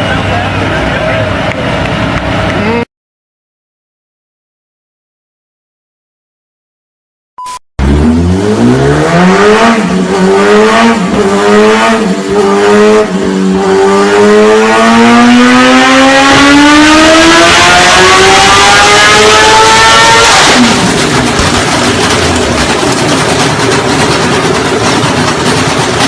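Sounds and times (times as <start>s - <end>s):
motorcycle engine revving: 7.8s - 26.0s.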